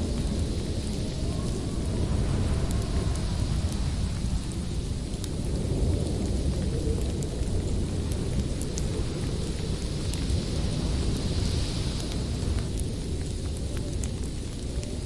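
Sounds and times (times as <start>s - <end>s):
storm wind rumbling: 0.0s - 15.0s
wood fire crackling: 0.0s - 15.0s.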